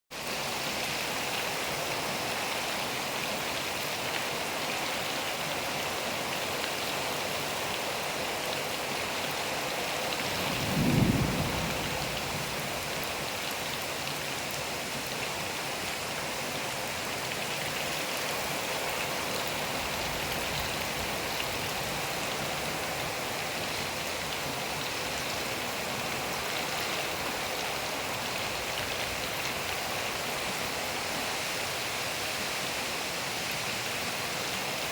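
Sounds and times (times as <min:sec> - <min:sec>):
steady rain: 0:00.1 - 0:34.9
thunder rumble: 0:10.3 - 0:13.0.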